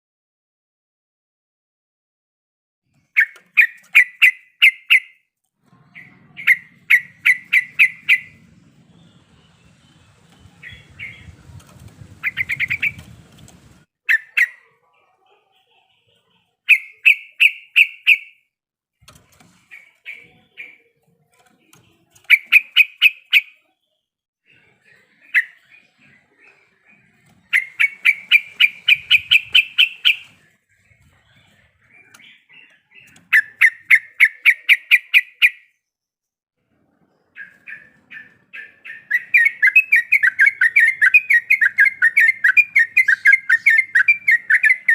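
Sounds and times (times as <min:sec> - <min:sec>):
bird rattling chatter song: 0:03.2 - 0:05.1, 0:06.0 - 0:08.4, 0:10.5 - 0:14.7, 0:22.1 - 0:23.6, 0:27.4 - 0:30.5, 0:31.9 - 0:35.6, 0:37.4 - 0:44.9.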